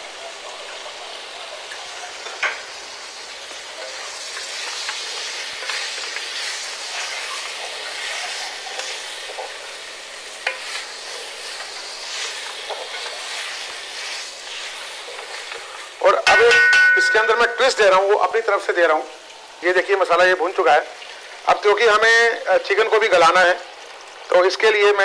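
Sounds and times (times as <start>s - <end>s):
chicken sizzling in a pot: 0.0s - 25.0s
wooden spatula scraping pot: 10.4s - 15.9s.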